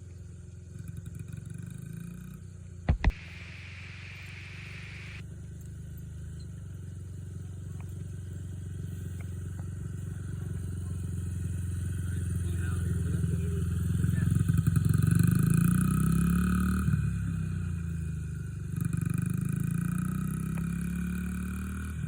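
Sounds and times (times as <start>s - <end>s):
dirt bike engine running: 0.0s - 22.0s
sharp click: 2.9s - 5.2s.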